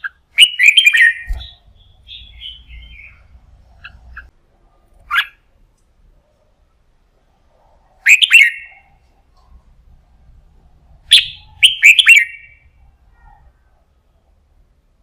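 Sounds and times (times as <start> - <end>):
bird whistled song: 0.0 - 4.3, 8.0 - 9.0, 11.1 - 12.7.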